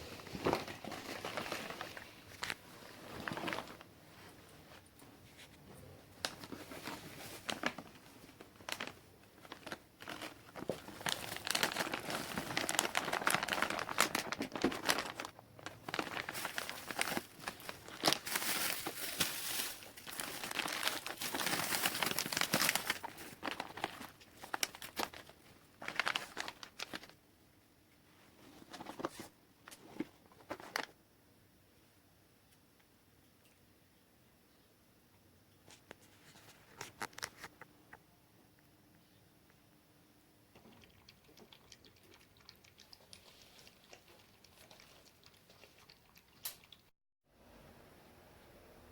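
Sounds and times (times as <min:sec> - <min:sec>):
bag crinkling and rustling: 0:00.0 - 0:04.3, 0:06.2 - 0:27.2.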